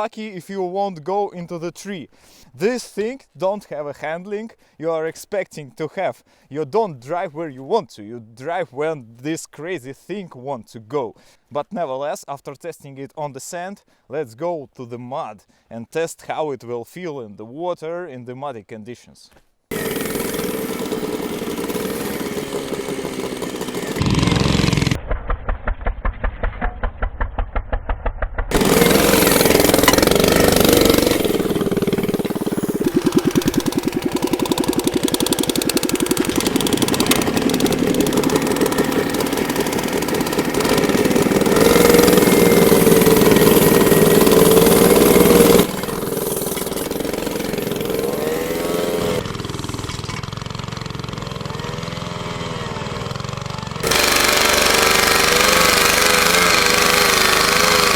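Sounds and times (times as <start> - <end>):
motorcycle engines revving: 19.7 - 25.0, 28.5 - 57.9.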